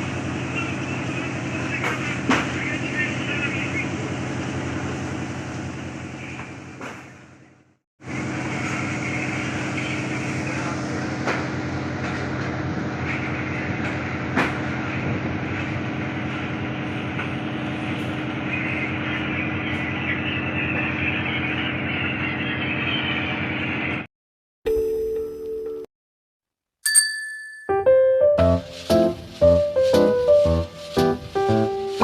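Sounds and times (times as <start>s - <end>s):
engine drone: 0.0s - 24.1s.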